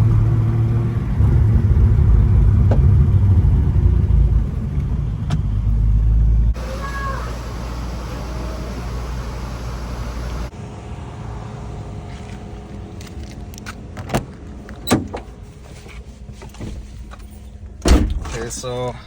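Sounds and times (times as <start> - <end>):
steady low rumble: 0.0 - 14.7.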